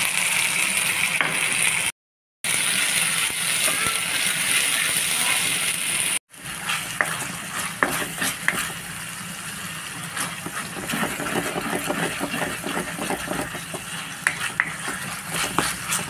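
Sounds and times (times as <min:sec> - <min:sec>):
onion masala sizzling in pan: 0:00.0 - 0:01.9, 0:02.5 - 0:16.0
wooden spatula scraping pan: 0:06.5 - 0:08.8, 0:10.0 - 0:16.0.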